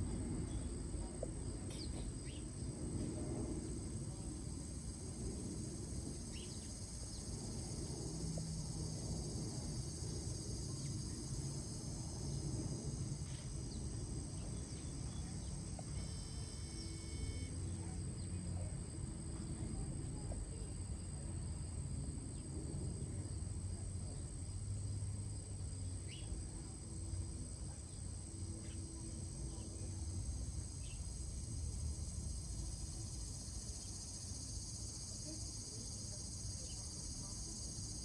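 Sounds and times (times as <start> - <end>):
insects trilling: 3.6 - 18.6, 25.8 - 38.0.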